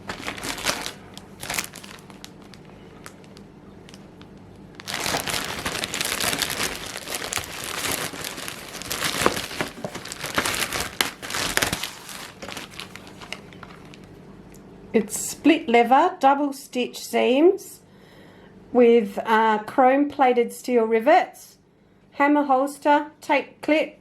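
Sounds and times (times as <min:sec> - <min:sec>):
packaging crinkling and rustling: 0:00.0 - 0:14.2.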